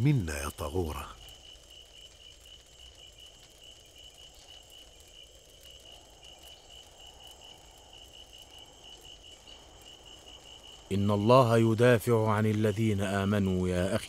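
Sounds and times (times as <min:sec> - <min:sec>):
insect chirping: 0:00.0 - 0:14.0.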